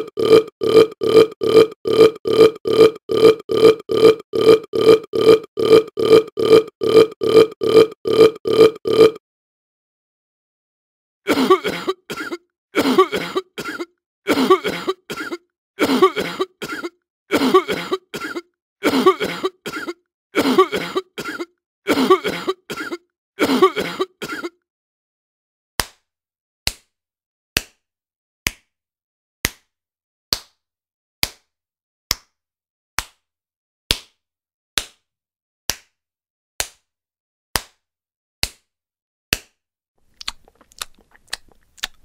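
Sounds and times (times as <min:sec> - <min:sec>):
person coughing: 0:11.3 - 0:24.6.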